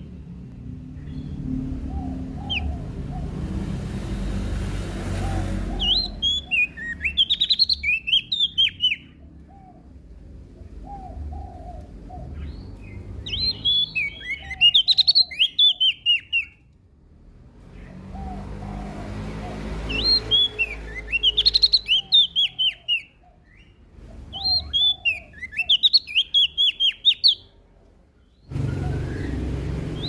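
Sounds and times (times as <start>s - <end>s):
bird singing sharp chirps: 5.8s - 9.2s, 12.3s - 16.6s, 19.9s - 27.5s.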